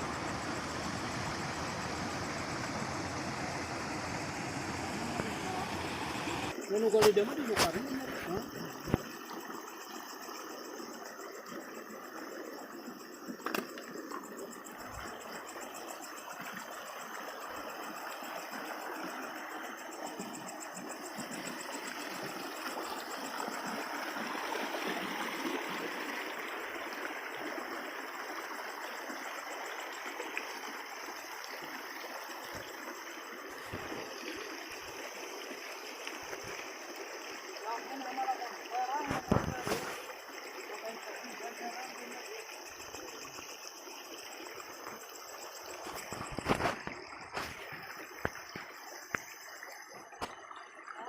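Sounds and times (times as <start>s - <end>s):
stream water flowing: 0.0s - 51.0s.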